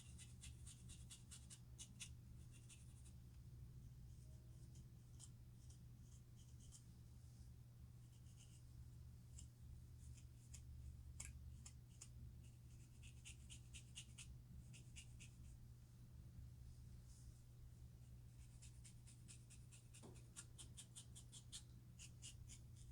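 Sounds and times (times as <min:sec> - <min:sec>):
steady low hum: 0:01.9 - 0:22.9.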